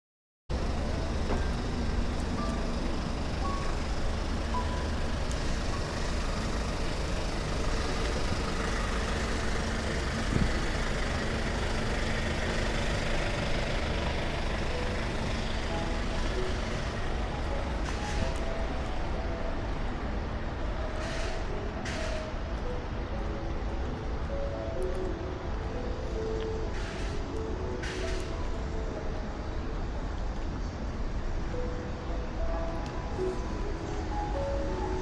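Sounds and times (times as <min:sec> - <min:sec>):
low rumble of background noise: 0:00.5 - 0:35.0.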